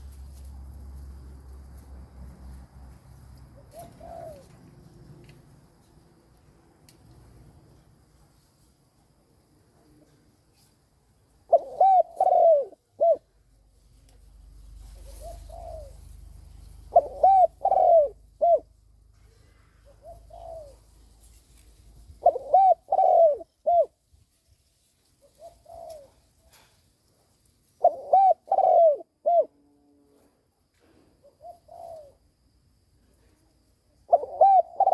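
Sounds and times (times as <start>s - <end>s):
dove cooing: 3.6s - 4.9s, 11.5s - 13.4s, 14.9s - 16.2s, 16.8s - 18.8s, 19.8s - 20.9s, 22.1s - 24.0s, 25.2s - 26.7s, 27.8s - 29.9s, 31.2s - 32.2s, 34.1s - 34.9s.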